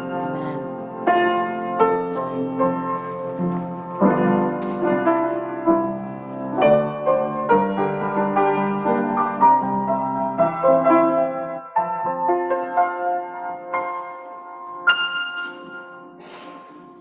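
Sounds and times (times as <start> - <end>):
slow keyboard chords: 0.0 - 1.0.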